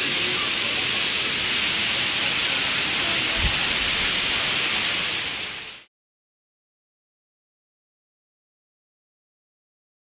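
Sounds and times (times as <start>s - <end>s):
waterfall rushing: 0.0s - 5.9s.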